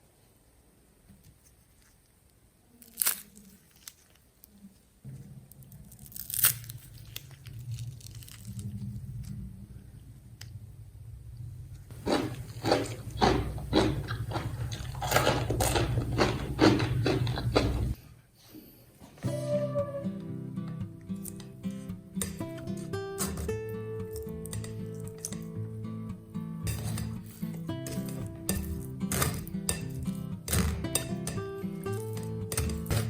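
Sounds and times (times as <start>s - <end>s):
potatoes crunching and scraping: 2.8s - 4.2s, 5.5s - 9.0s, 11.9s - 18.0s, 26.7s - 33.0s.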